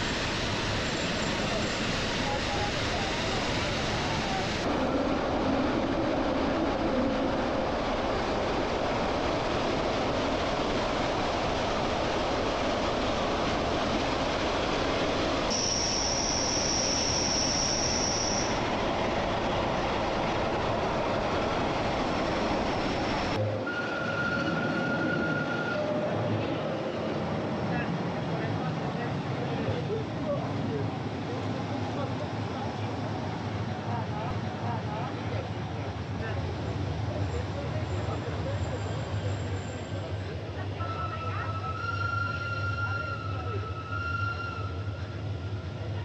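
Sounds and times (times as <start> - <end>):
train wheels rushing on rail: 0.0 - 46.0
high wheel squeal: 15.5 - 18.6, 23.6 - 26.2, 40.9 - 45.3.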